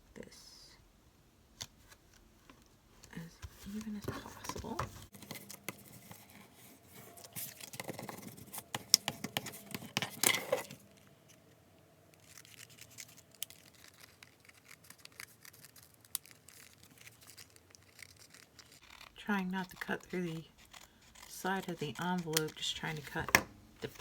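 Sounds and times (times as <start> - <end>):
paper being cut: 12.3 - 23.2.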